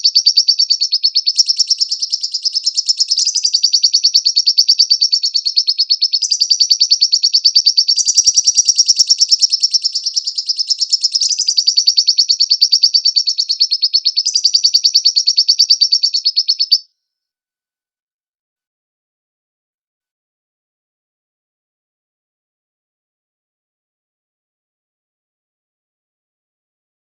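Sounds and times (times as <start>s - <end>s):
bird chattering trill: 0.0s - 16.8s.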